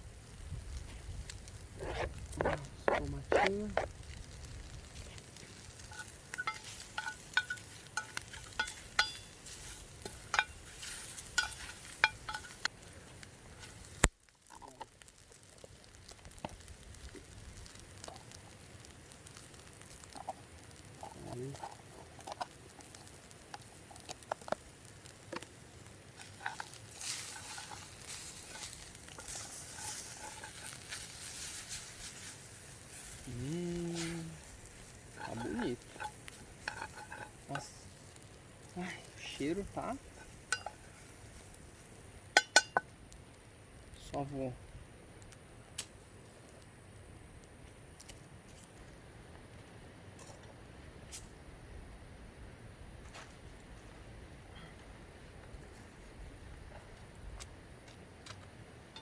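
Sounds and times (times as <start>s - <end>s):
sausage sizzling in a pan: 0.0s - 44.5s
utensil clinking against pan: 5.9s - 9.4s, 10.0s - 10.6s, 11.3s - 12.6s.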